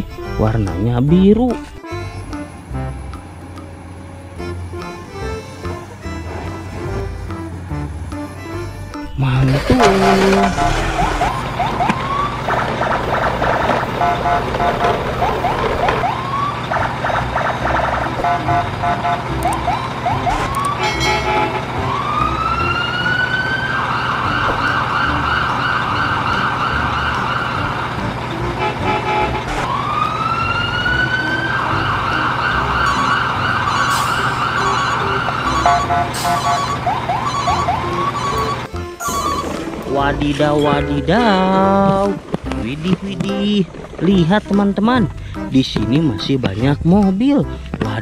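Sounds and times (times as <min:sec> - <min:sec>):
siren wailing: 0:09.3 - 0:28.0, 0:28.8 - 0:41.2
rising chirps and beeps: 0:32.1 - 0:39.7.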